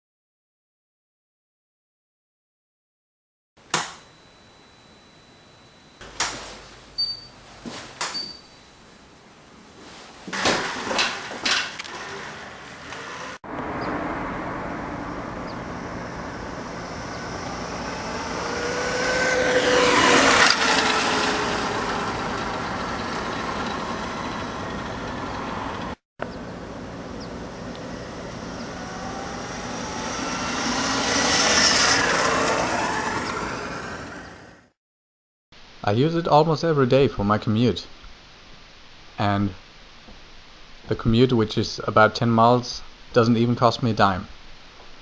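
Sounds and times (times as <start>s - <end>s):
electric motorcycle passing by: 10.4s - 34.8s.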